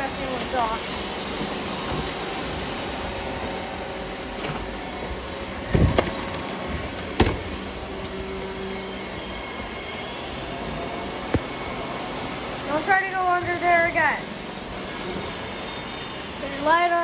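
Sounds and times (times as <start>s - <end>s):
robot vacuums whirring: 0.0s - 17.0s
sharp knocks: 7.1s - 7.6s.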